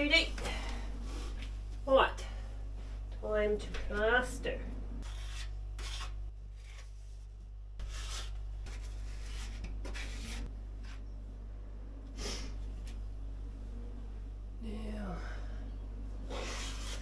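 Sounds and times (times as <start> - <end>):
steady low hum: 0.0 - 17.0
filler scraping on wood: 5.0 - 7.0, 7.8 - 11.0, 16.3 - 17.0.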